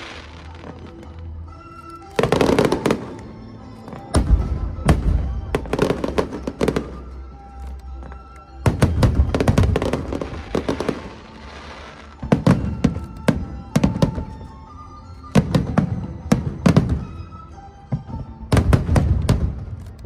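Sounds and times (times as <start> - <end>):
fireworks crackling: 0.0 - 1.4, 2.0 - 3.3, 3.9 - 14.4
music: 0.0 - 20.0
fireworks exploding: 2.2 - 7.1, 8.7 - 14.4, 18.5 - 19.8.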